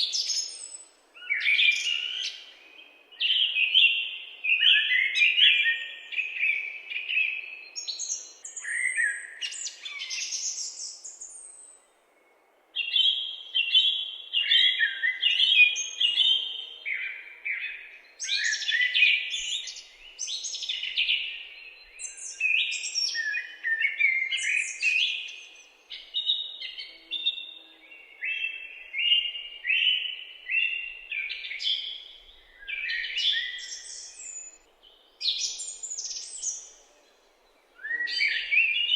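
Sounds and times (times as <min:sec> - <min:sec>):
birds chirping and singing: 0:17.5 - 0:38.9.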